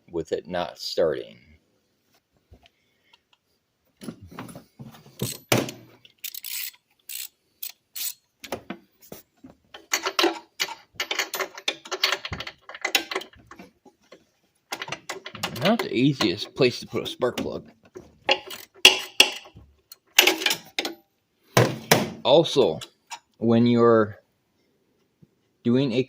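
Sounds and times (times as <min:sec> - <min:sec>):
metal hand tools clinking: 0:18.3 - 0:21.0.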